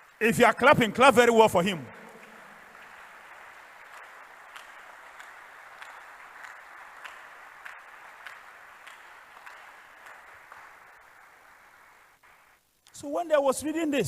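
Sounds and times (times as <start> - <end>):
congregation applauding: 0.0 - 12.6
sharp single claps: 1.6 - 12.5.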